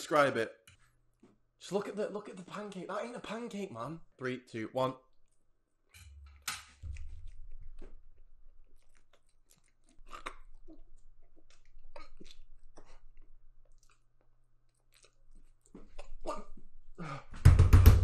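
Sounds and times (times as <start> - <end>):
person chewing wetly: 6.8 - 16.7.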